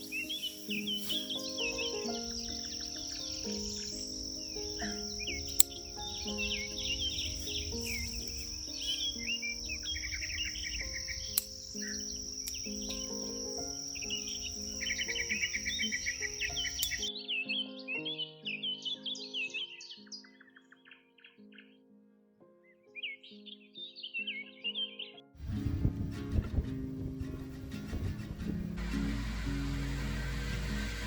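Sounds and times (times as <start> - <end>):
high insect drone: 0.0 - 17.1
birds chirping and trilling: 0.0 - 21.9, 22.7 - 25.3
soft background music: 0.0 - 31.0.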